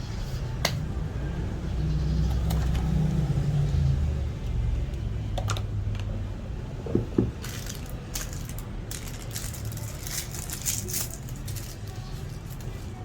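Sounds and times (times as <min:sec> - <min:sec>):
metal parts clicking: 0:07.4 - 0:12.6.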